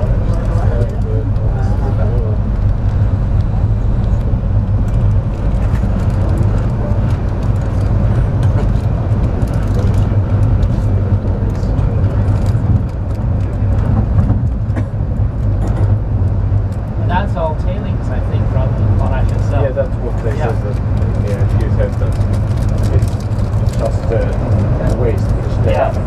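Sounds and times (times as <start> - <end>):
faint clicks and rattles: 0.0 - 17.0, 18.7 - 26.0
train rumble from inside car: 0.0 - 26.0.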